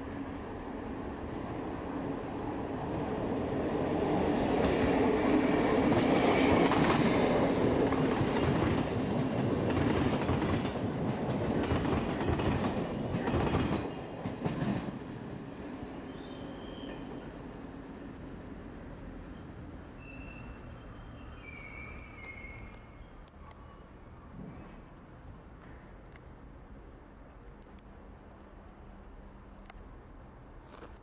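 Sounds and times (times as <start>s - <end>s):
passenger train rumbling past: 0.0s - 30.6s
wheel squeaks: 20.0s - 23.1s.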